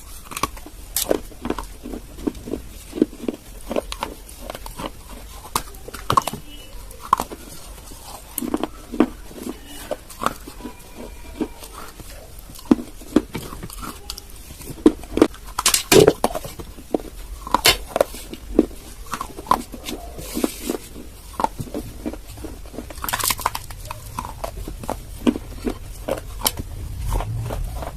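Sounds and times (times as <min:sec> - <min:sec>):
crunching and chewing clay: 0:00.0 - 0:27.9.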